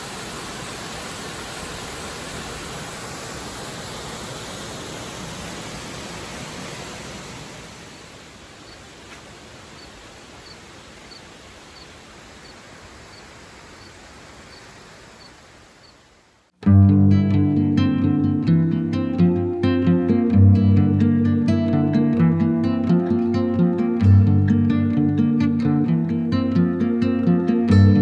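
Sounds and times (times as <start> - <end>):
waterfall rushing: 0.0 - 15.5
guitar music: 16.6 - 28.0.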